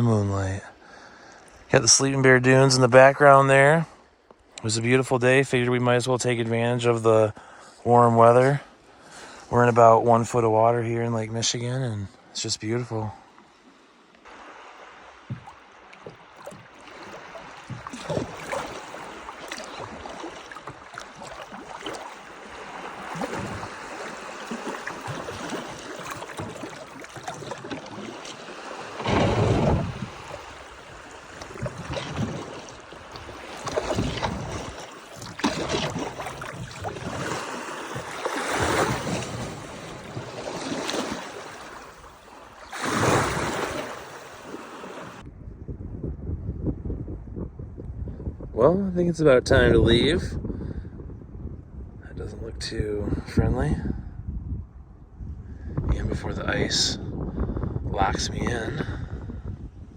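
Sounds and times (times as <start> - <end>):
water lapping around kayak: 0.0 - 45.3
wind buffeting microphone: 14.3 - 59.9.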